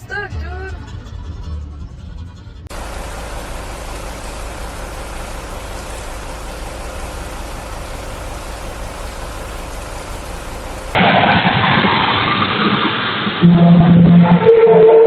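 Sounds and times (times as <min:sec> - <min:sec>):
vehicle engine and road rumble: 0:00.4 - 0:11.0
faint steady hum: 0:02.7 - 0:11.0.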